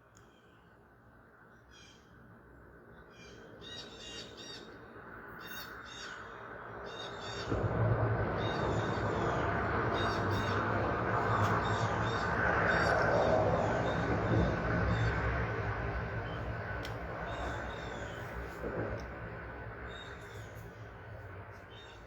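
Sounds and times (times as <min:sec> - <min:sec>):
low steady rumble: 0:07.2 - 0:22.0
bird cawing: 0:08.4 - 0:15.3, 0:17.2 - 0:18.4.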